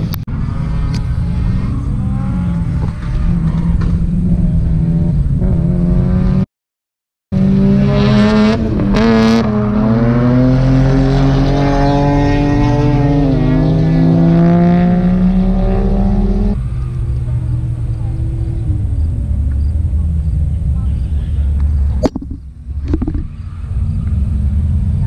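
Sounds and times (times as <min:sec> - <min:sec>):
car engines revving: 0:00.0 - 0:06.5, 0:07.4 - 0:25.0
low engine rumble: 0:16.6 - 0:25.0.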